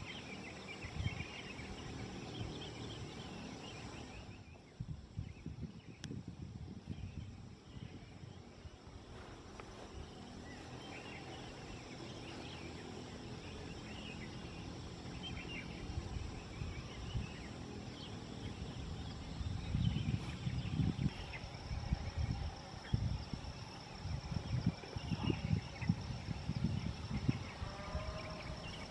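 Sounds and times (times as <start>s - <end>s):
birds chirping: 0.0s - 28.9s
high insect drone: 0.0s - 28.9s
wind rumbling on microphone: 0.0s - 28.9s.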